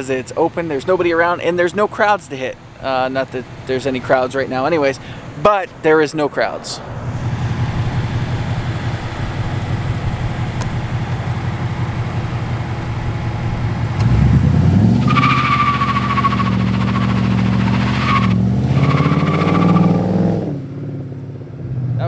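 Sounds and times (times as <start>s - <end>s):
car engine revving: 0.0s - 22.0s
tyres squealing: 7.6s - 20.1s.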